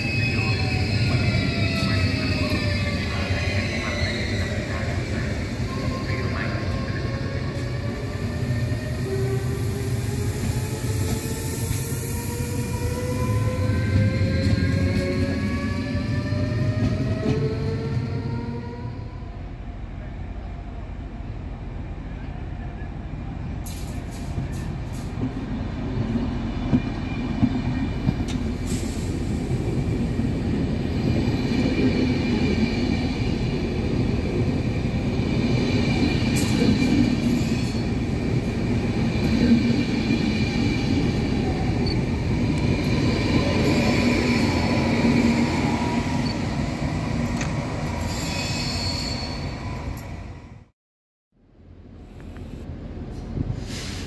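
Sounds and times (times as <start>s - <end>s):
train rumble on rails: 0.0s - 50.7s, 51.5s - 54.0s
high wheel squeal: 48.0s - 49.6s.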